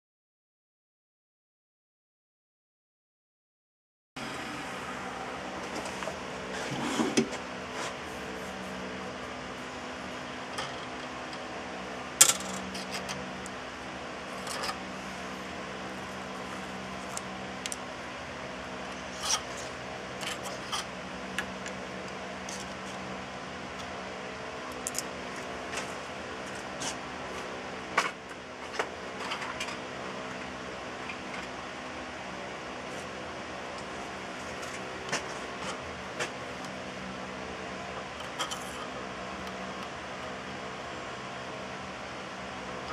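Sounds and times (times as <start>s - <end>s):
machine hum: 4.2s - 42.9s.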